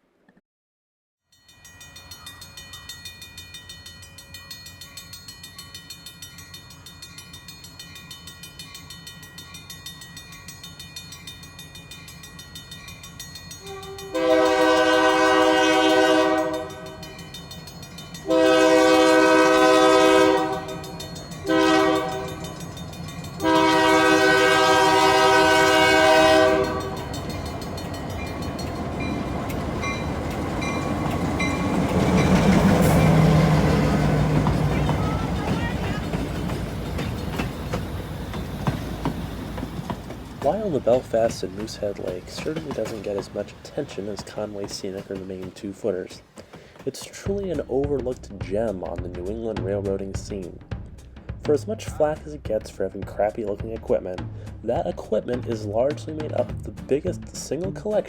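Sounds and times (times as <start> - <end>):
locomotive engine running: 2.7 - 46.1
multi-chime air horn blasts: 13.5 - 27.4.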